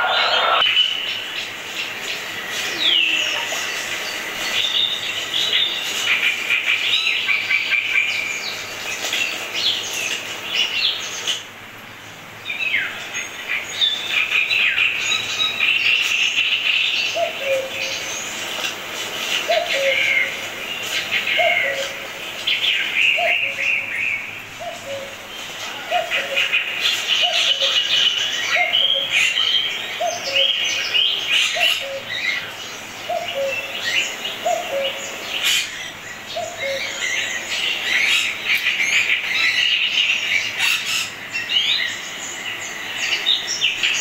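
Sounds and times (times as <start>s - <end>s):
lower bird call: 0.0s - 0.9s
birds chirping and trilling: 0.0s - 44.0s.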